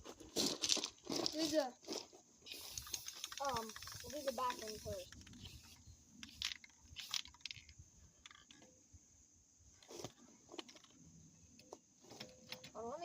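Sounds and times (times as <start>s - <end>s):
objects being handled clicking: 0.4s - 8.8s, 9.8s - 12.8s.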